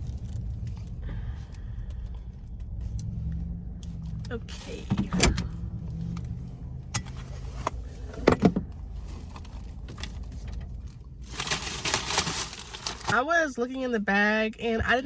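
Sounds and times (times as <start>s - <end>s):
car engine idling: 0.0s - 13.9s
paper bag rustling: 8.9s - 13.2s.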